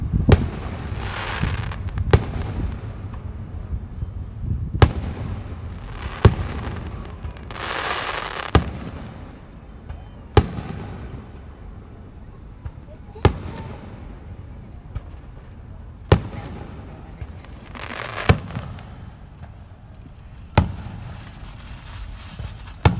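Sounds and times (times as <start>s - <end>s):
firework hiss: 0.0s - 3.2s, 4.8s - 9.5s, 16.1s - 22.9s
fireworks bangs: 0.0s - 22.9s.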